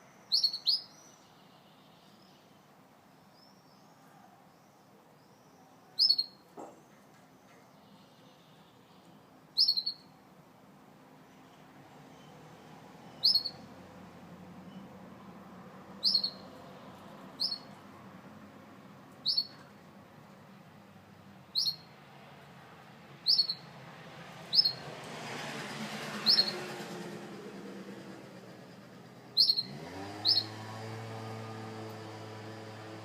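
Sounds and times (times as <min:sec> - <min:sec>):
canary chirps: 0:00.2 - 0:02.6, 0:04.6 - 0:10.2, 0:11.3 - 0:13.8, 0:15.9 - 0:17.8, 0:19.1 - 0:19.8, 0:21.5 - 0:21.9, 0:23.2 - 0:23.7, 0:24.4 - 0:24.8, 0:26.2 - 0:26.6, 0:29.3 - 0:30.6.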